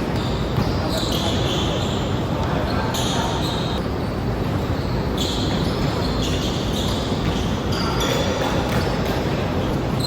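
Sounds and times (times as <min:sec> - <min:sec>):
basketball bouncing on court: 0:00.0 - 0:01.0, 0:08.4 - 0:09.2
steady background noise: 0:00.0 - 0:10.0.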